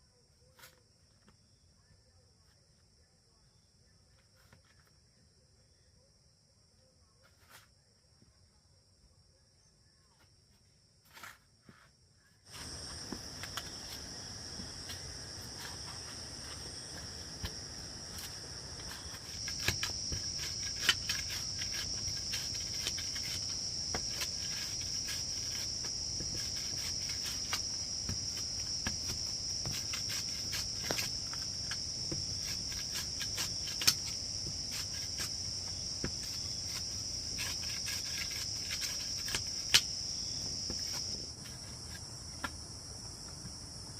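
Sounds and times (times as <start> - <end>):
crickets shrilling: 12.4 - 43.9.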